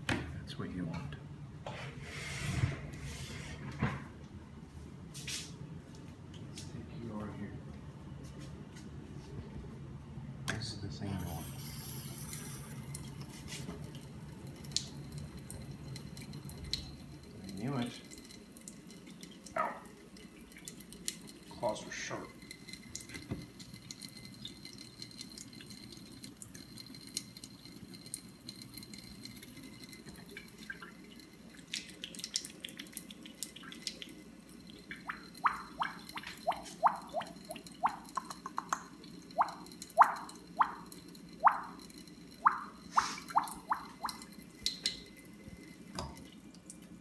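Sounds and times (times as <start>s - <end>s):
faucet water running into sink: 11.2s - 47.0s
water drop plinks: 34.9s - 41.8s, 42.4s - 45.0s.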